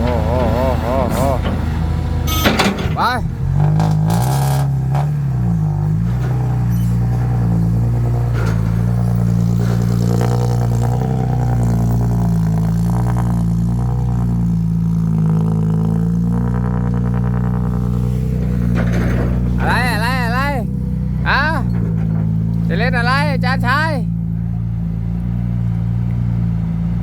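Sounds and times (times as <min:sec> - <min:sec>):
heavy diesel engine running: 0:00.0 - 0:27.0.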